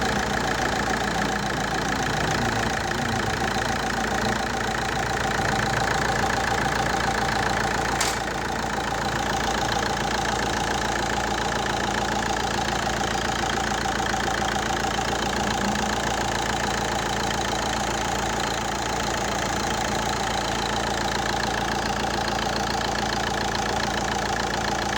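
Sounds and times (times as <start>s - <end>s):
diesel engine idling: 0.0s - 24.9s
sharp click: 8.0s - 8.3s.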